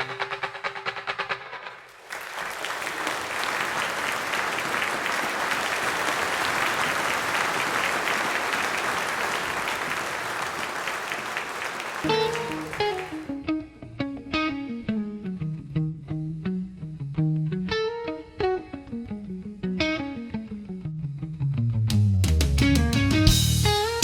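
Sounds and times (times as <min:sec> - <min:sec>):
audience applauding: 0:01.9 - 0:13.3
electric guitar playing: 0:12.0 - 0:24.0.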